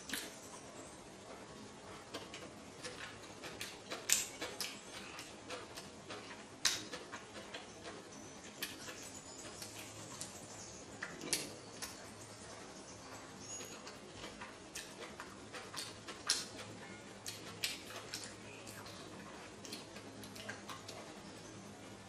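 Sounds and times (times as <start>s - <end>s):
person chewing: 1.9s - 10.4s, 11.0s - 21.0s
wet mouth clicks and smacks: 3.4s - 7.6s, 14.7s - 19.0s.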